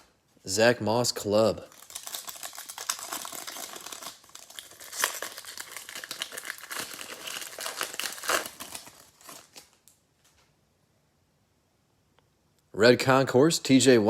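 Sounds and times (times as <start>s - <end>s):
wrapper crinkling and tearing: 1.6s - 10.0s.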